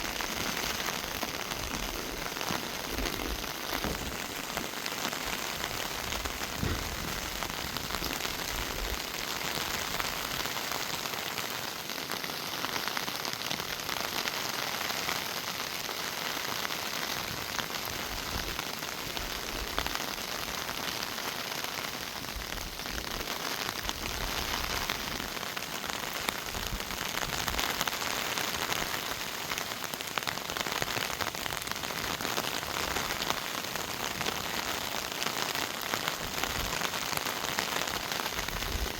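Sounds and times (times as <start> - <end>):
rain falling on leaves: 0.0 - 38.9.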